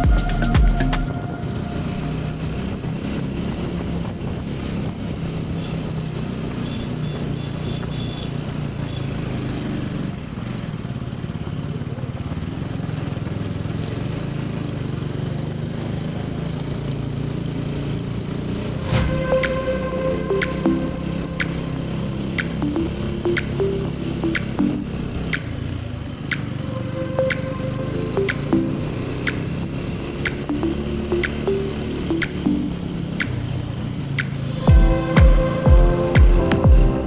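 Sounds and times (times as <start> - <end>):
road and wind noise: 1.0 - 37.0
motorcycle engine running: 8.6 - 18.8.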